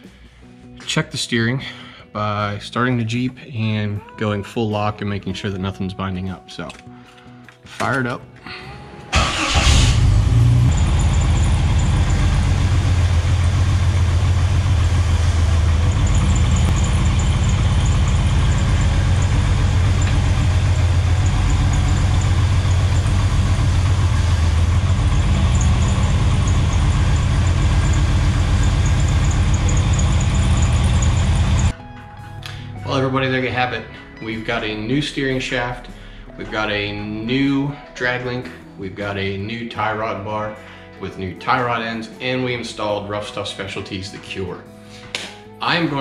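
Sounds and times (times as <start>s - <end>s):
car engine idling: 9.1s - 31.7s.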